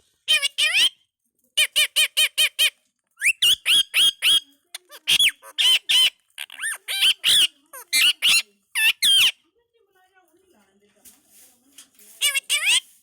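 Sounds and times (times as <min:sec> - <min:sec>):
parakeet calling shrilly: 0:00.3 - 0:01.0, 0:01.6 - 0:09.4, 0:12.2 - 0:12.9.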